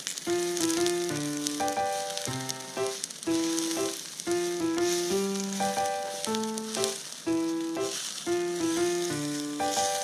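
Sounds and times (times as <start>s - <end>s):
noodles sizzling on a grill: 0.0s - 10.0s
chopsticks stirring food: 0.9s - 10.0s.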